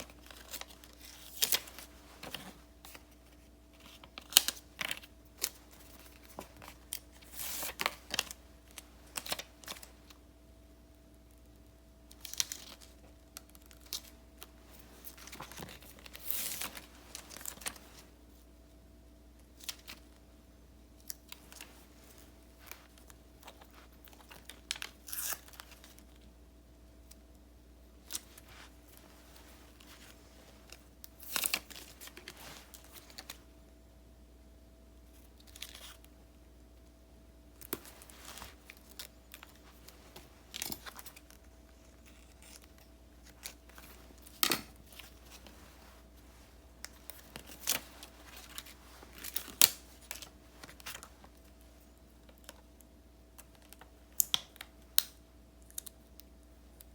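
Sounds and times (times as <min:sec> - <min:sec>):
paper rustling and crinkling: 0:00.0 - 0:10.2, 0:12.1 - 0:18.2, 0:21.1 - 0:26.2, 0:28.0 - 0:33.5, 0:37.6 - 0:52.7
faint steady hum: 0:00.0 - 0:56.9.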